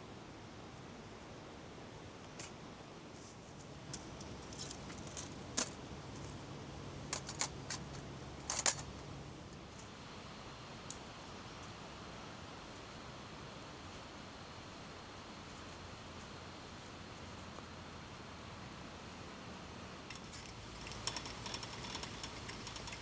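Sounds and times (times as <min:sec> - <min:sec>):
small hard objects clicking: 0:20.1 - 0:23.0.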